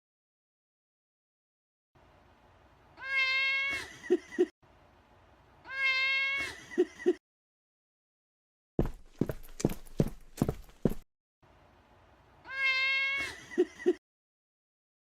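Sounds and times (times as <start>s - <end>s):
cat meowing: 3.0s - 3.9s, 5.6s - 6.6s, 12.4s - 13.4s.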